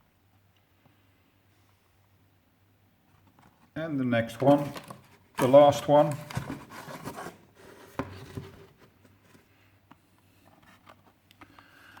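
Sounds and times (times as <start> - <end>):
packaging rubbing and rustling: 4.4 - 9.3.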